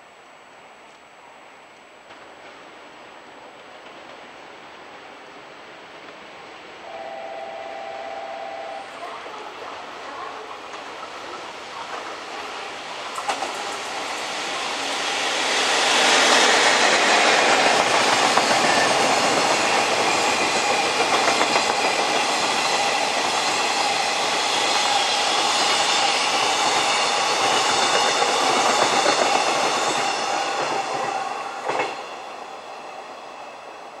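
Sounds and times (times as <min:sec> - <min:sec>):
train wheels clattering: 0:10.3 - 0:32.4.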